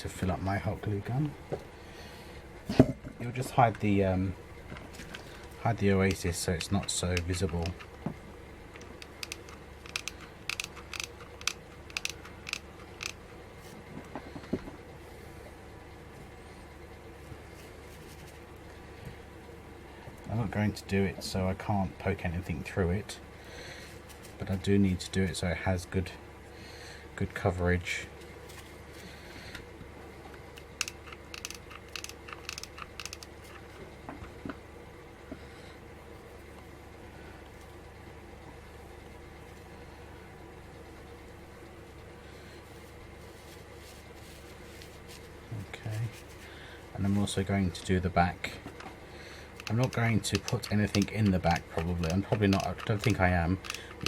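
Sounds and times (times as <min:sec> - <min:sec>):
faint steady hum: 0:00.0 - 0:54.0
sharp clicks of craft materials: 0:08.8 - 0:13.2, 0:30.6 - 0:33.6.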